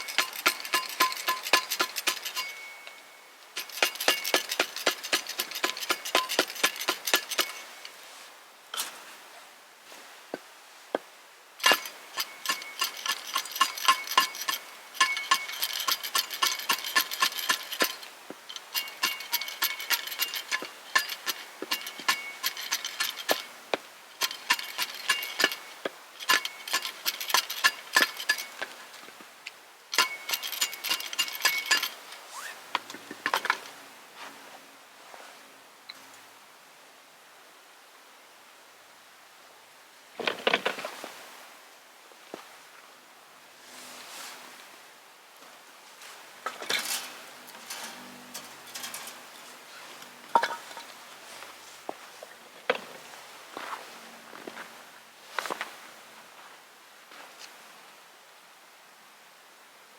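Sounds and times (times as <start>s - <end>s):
metal tool striking with ringing tone: 0.0s - 4.6s.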